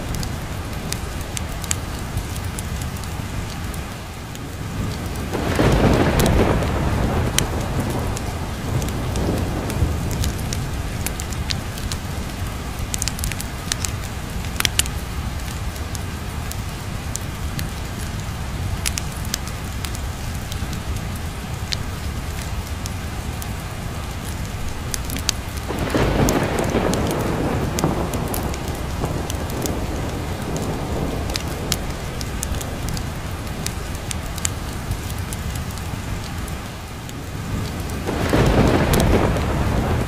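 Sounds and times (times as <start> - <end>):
steady rain: 0.0 - 40.0
wood fire crackling: 0.0 - 40.0
thunder roll: 5.2 - 10.8, 25.6 - 33.0, 37.6 - 40.0.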